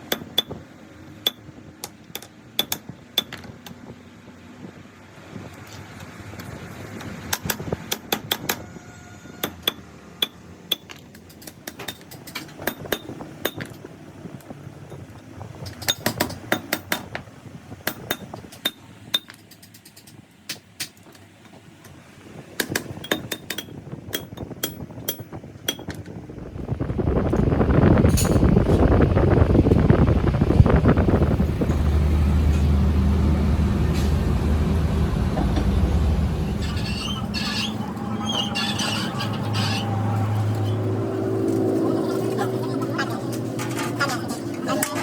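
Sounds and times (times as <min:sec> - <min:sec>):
steady machine noise: 0:26.2 - 0:41.8.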